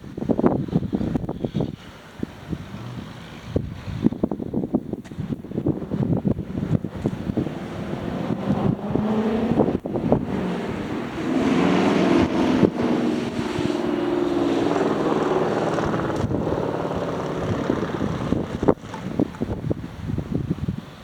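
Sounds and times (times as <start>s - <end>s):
wind rumbling on microphone: 0.0s - 21.0s
motor engine droning: 5.2s - 19.8s.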